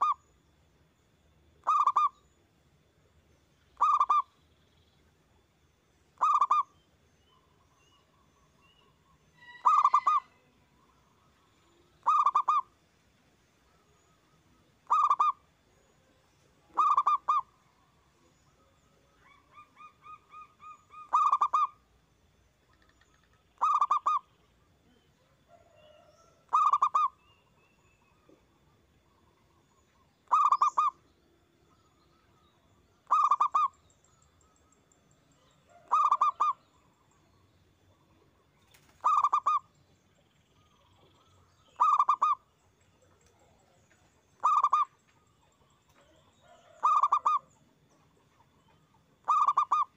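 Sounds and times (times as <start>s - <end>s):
dove cooing: 1.6s - 2.1s, 3.8s - 4.2s, 6.2s - 6.6s, 9.4s - 10.3s, 12.0s - 12.7s, 14.8s - 15.4s, 16.7s - 17.5s, 19.2s - 21.8s, 23.6s - 24.2s, 25.5s - 27.2s, 30.3s - 30.9s, 33.1s - 33.7s, 35.7s - 36.6s, 38.8s - 39.6s, 41.8s - 42.4s, 44.4s - 44.9s, 46.0s - 47.5s, 49.2s - 49.9s.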